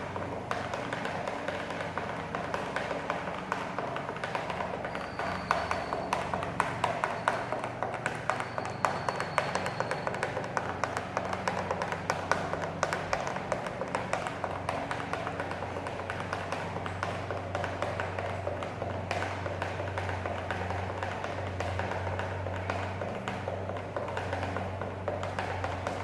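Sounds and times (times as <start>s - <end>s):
sharp irregular taps and clicks: 0.0s - 26.0s
faint high whistle-like tone: 4.8s - 6.4s, 8.3s - 10.4s.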